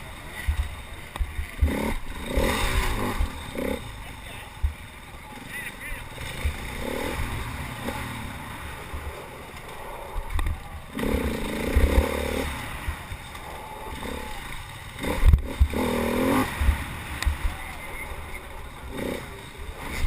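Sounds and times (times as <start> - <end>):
racing engine revving: 0.0 - 4.4, 5.2 - 20.0
low rumble with thuds: 15.1 - 17.8.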